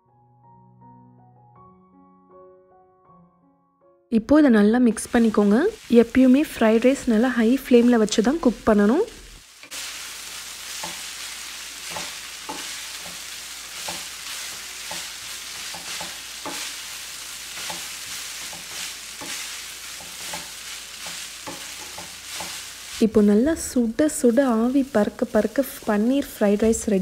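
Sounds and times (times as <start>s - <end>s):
food sizzling in a wok: 4.4s - 27.0s
spatula scraping a wok: 9.5s - 23.2s.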